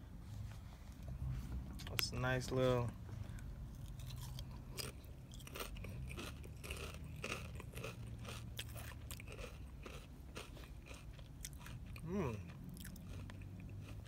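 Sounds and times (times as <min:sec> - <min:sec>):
person chewing crunchy chips: 0:03.4 - 0:14.0.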